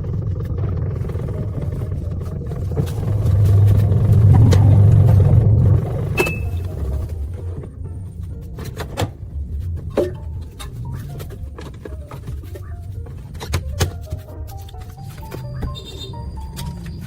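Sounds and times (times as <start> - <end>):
machine low rumble: 0.0 - 13.4.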